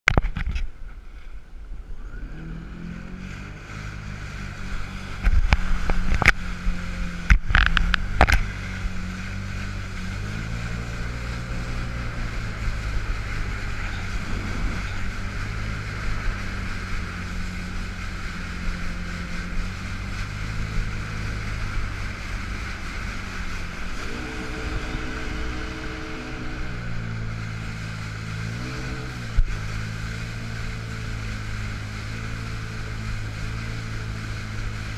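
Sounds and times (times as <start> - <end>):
wind: 0.0 - 34.9
jet ski engine running: 0.1 - 34.9
water noise: 0.1 - 34.9.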